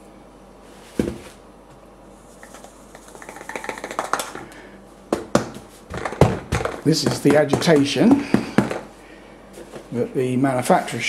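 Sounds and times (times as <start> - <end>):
powder rattling and scraping: 2.3 - 4.6
plastic container thumping: 5.1 - 8.9.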